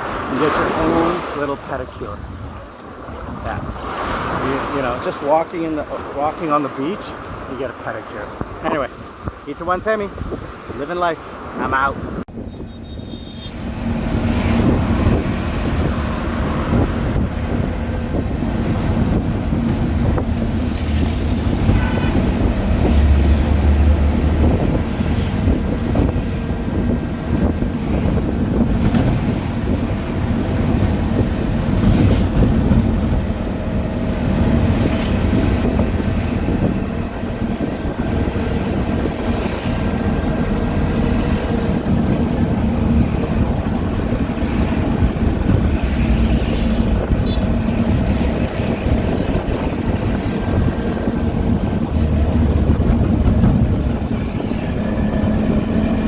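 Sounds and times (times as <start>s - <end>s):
vehicle engine humming: 12.3s - 56.0s.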